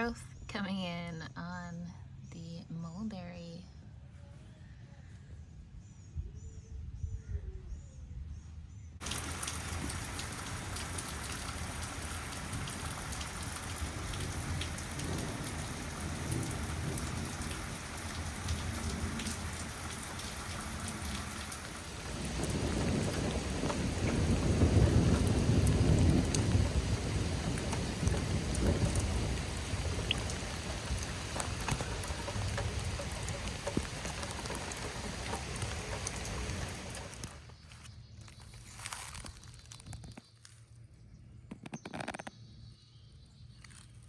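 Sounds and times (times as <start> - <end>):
low rumble of thunder: 9.0 - 37.5
rain falling: 9.0 - 39.8.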